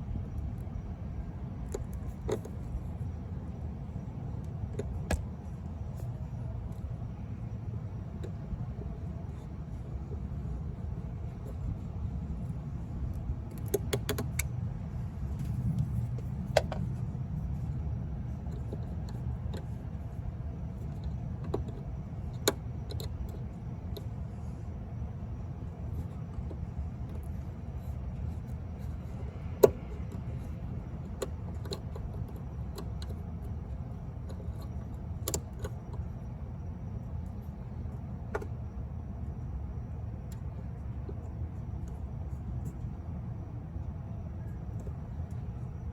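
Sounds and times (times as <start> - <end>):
low rumble: 14.6 - 18.5.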